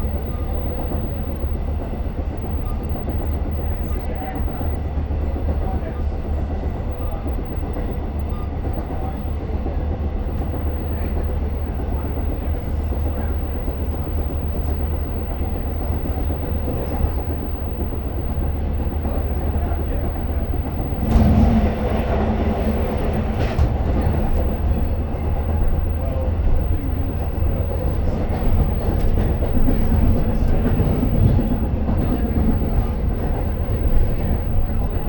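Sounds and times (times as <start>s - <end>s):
train wheels rumbling on rails: 4.8s - 35.0s
low hum: 17.5s - 35.0s
sharp clatter: 20.9s - 26.0s.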